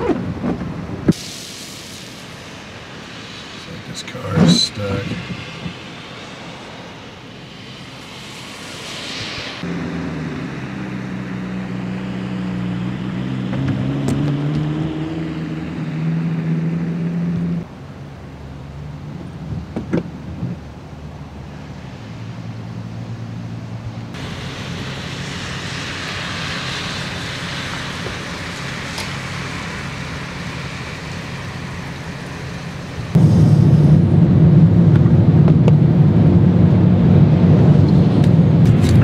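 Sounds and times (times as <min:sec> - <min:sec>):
vehicle engine humming: 0:00.0 - 0:39.0
steady hiss: 0:01.1 - 0:12.4, 0:24.1 - 0:33.7.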